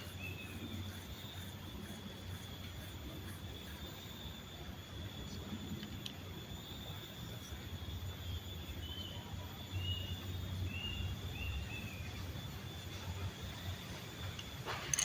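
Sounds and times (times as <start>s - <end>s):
high insect whine: 0.0s - 15.0s
small bird chirping: 8.8s - 12.2s.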